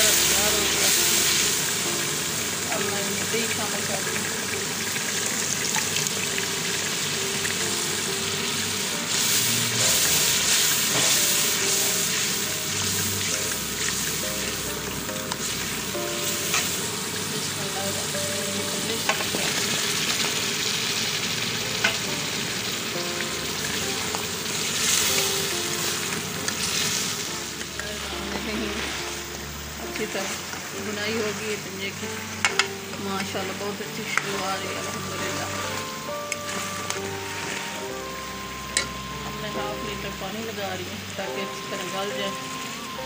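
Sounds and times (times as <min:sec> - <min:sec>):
masala sizzling in hot oil: 0:00.0 - 0:43.0
ladle clicking on metal pan: 0:32.4 - 0:33.3.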